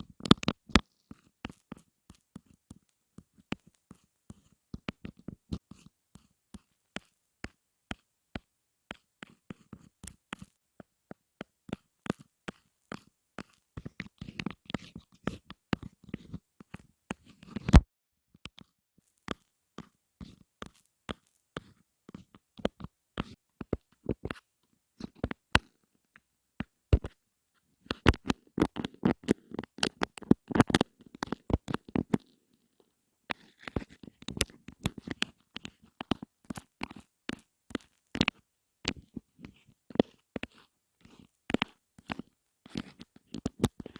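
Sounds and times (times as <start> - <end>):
close taps and clicks: 25.0 - 27.2, 27.8 - 32.4.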